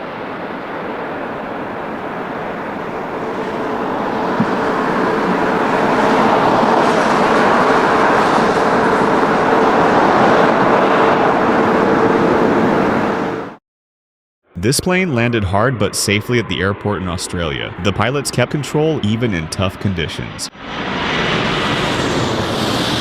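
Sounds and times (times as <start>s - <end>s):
steady hum: 0.0s - 9.5s
jet engines running: 0.0s - 13.6s, 14.6s - 23.0s.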